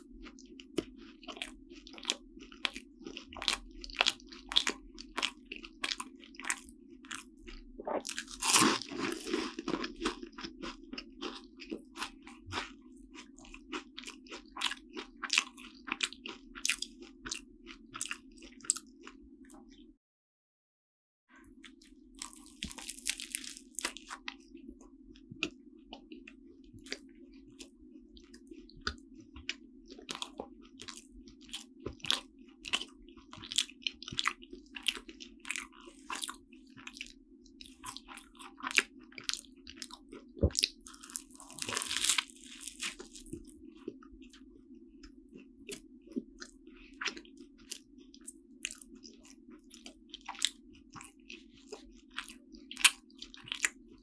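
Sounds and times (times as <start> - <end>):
chewing with small crackles: 0.0 - 20.0, 21.4 - 54.0
biting crisp pastry: 0.8 - 19.2, 21.6 - 24.6, 25.4 - 44.5, 45.4 - 54.0
soft mouth sounds: 32.7 - 53.8.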